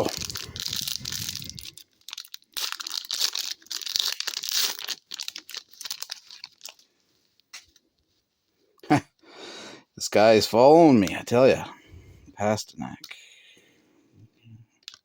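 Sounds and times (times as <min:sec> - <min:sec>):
wrapper crinkling and tearing: 0:00.0 - 0:07.4, 0:14.8 - 0:15.0.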